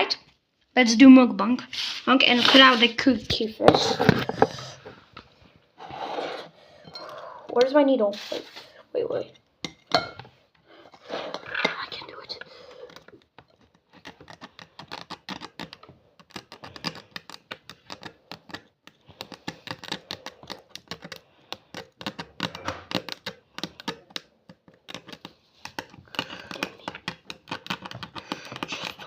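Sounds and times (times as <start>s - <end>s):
needle scratching candy: 11.0s - 29.0s.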